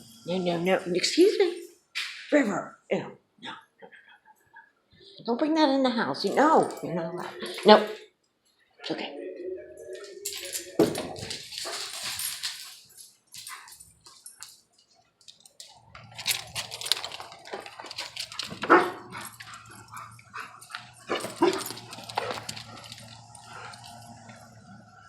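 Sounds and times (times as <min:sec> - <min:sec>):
dog barking: 0:18.6 - 0:19.4.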